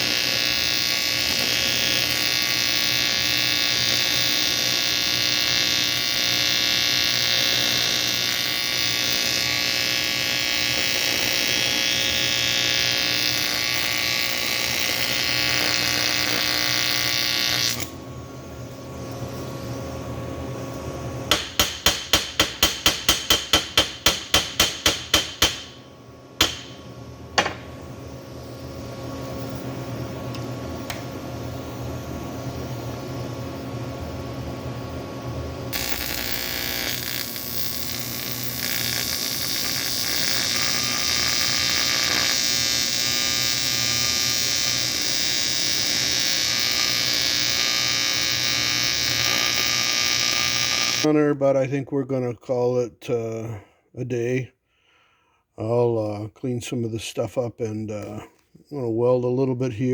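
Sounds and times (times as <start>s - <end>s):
welding arc buzzing hiss: 0.0s - 51.1s
sharp strikes: 26.4s - 26.8s.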